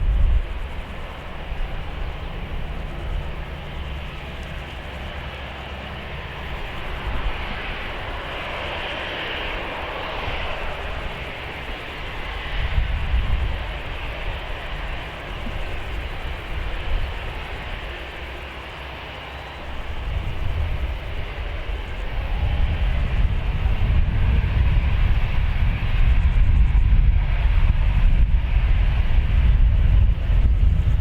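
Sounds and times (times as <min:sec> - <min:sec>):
jet engines rushing: 0:00.0 - 0:31.0.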